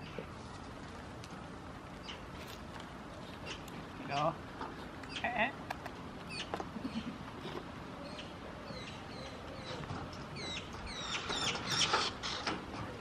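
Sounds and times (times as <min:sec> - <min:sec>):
small birds chirping: 0:02.0 - 0:02.3, 0:05.0 - 0:05.5, 0:06.2 - 0:07.2, 0:07.9 - 0:12.5.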